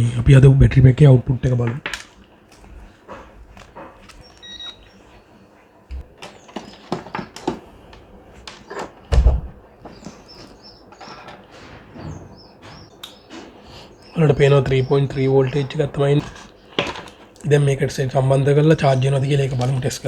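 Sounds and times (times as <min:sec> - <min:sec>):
bird chirping: 0:00.0 - 0:20.0
clicks and knocks of handling: 0:01.5 - 0:05.0, 0:05.9 - 0:11.7, 0:14.7 - 0:17.5
loud thump: 0:09.1 - 0:09.6.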